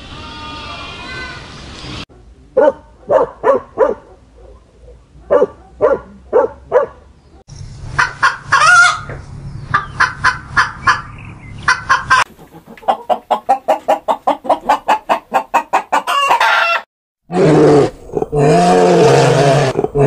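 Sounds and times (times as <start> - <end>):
hen clucking: 8.0 - 16.8.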